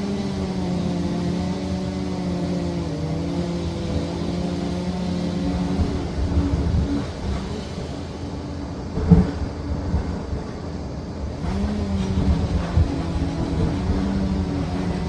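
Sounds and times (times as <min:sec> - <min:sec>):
dozer diesel engine running: 0:11.4 - 0:15.0.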